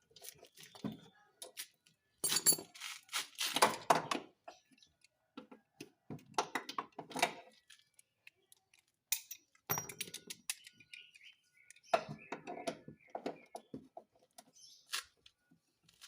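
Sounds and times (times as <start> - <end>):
metal hand tools clinking: 2.2 - 2.8.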